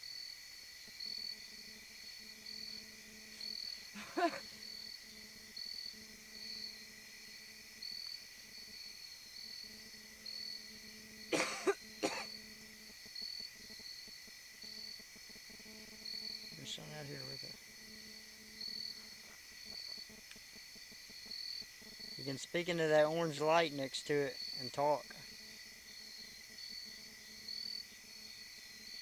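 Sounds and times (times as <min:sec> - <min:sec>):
insects chirping: 0:00.0 - 0:29.0
person coughing: 0:04.0 - 0:04.4, 0:11.4 - 0:12.3.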